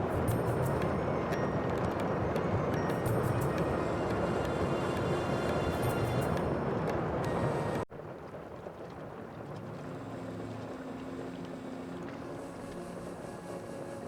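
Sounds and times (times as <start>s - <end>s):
wind and water rushing: 0.0s - 14.0s.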